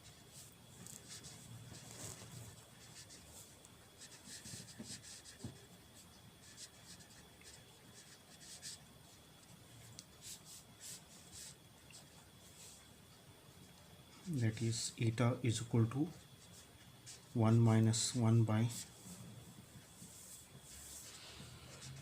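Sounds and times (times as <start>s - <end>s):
pen scratching on paper: 0.0s - 5.7s, 6.4s - 8.8s, 21.8s - 22.0s.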